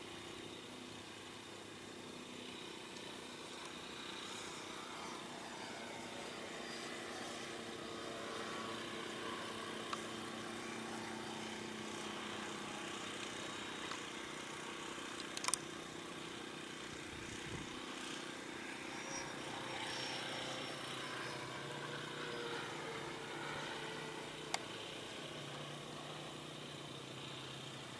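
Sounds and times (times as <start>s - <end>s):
model airplane engine running: 0.0s - 27.9s
sharp click: 15.2s - 15.6s.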